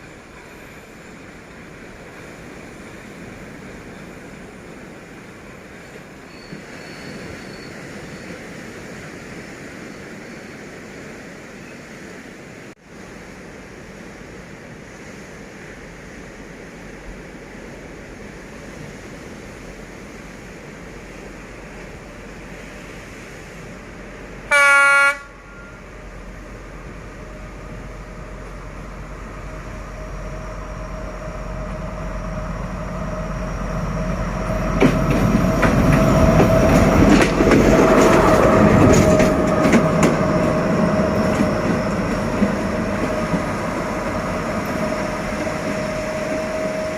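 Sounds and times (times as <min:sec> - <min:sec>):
diesel locomotive engine running: 0:23.6 - 0:46.9
locomotive horn blast: 0:24.5 - 0:25.9
wheels clicking over rail joints: 0:34.5 - 0:46.8.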